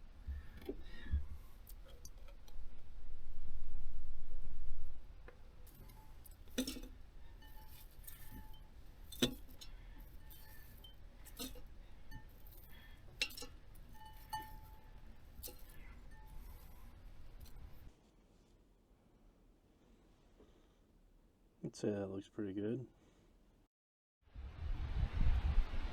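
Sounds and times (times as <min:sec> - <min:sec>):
small hard objects clinking: 0:05.6 - 0:17.9
deep rumble: 0:24.4 - 0:25.9.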